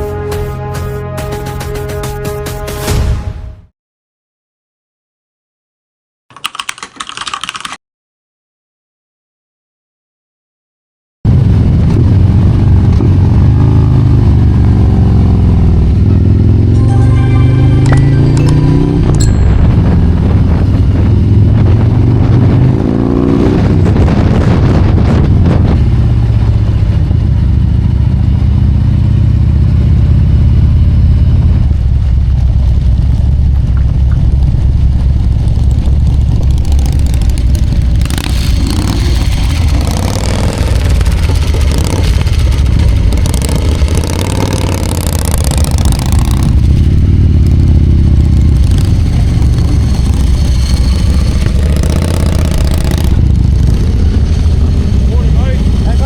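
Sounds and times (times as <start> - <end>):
motorcycle engine revving: 11.3 - 56.0
rushing noise: 16.5 - 25.9, 31.9 - 56.0.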